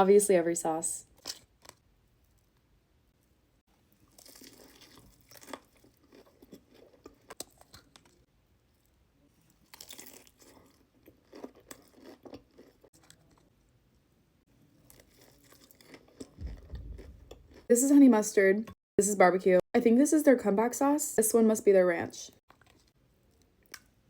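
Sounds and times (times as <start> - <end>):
crunching and chewing fried chicken: 1.1 - 2.6, 3.8 - 13.6, 14.6 - 17.7, 22.5 - 24.0.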